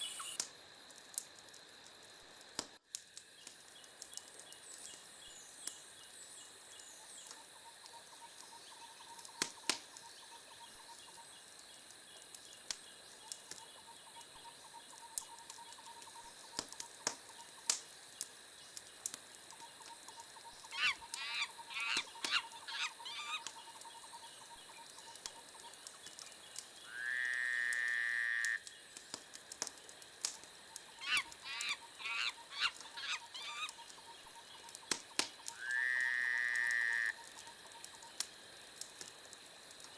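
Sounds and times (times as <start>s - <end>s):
wood fire crackling: 0.0s - 39.9s
sharp pops: 34.7s - 35.6s.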